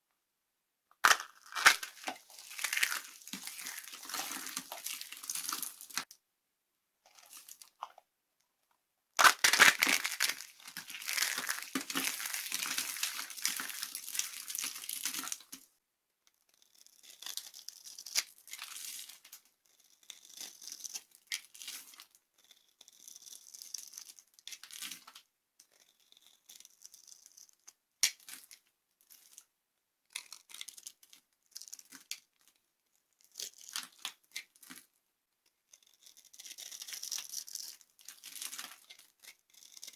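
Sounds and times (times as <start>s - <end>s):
dry soap crunching: 1.0s - 6.1s, 9.2s - 15.6s, 35.7s - 39.9s.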